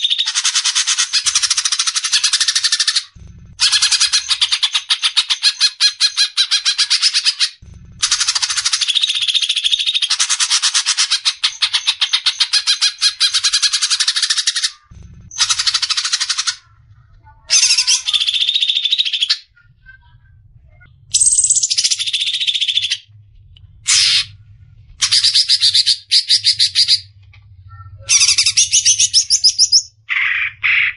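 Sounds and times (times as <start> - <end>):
bird chattering song: 0.0 - 16.8, 17.4 - 23.1, 25.0 - 27.1, 27.7 - 30.9.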